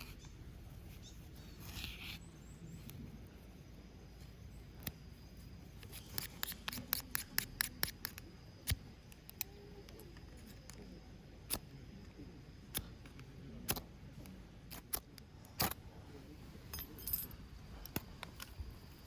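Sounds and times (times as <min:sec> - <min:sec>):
sharp irregular clicks and snaps: 0:05.8 - 0:15.8.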